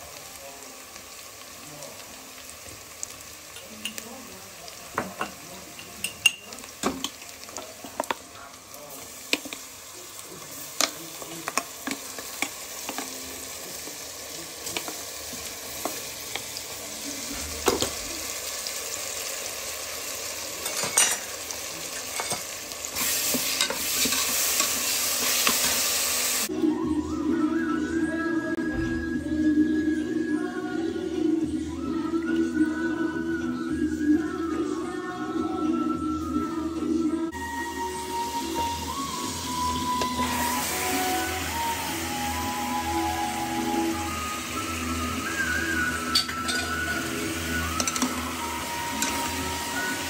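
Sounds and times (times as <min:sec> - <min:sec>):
onions sizzling in hot oil: 0:00.0 - 0:26.5, 0:37.3 - 0:50.0.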